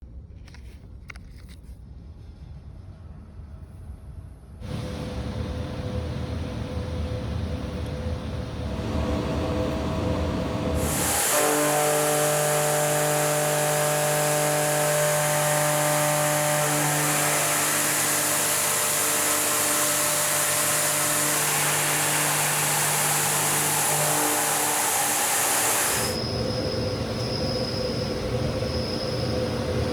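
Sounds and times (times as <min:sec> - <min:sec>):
milling cutter cutting steel: 0:08.6 - 0:27.4.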